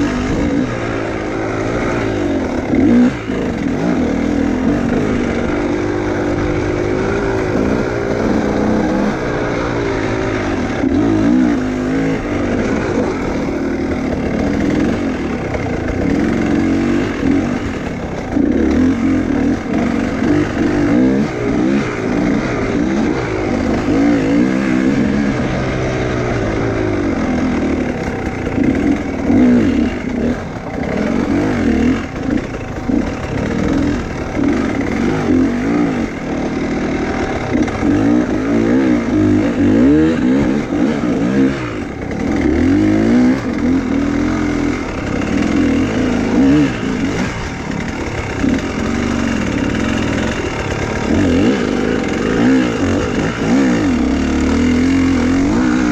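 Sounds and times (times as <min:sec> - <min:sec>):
motorcycle engine revving hard: 0:00.0 - 0:55.9.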